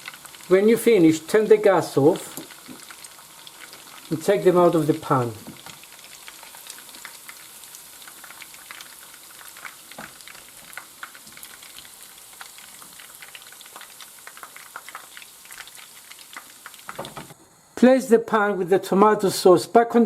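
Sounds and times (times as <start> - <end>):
meatballs sizzling in oil: 0.0 - 17.4.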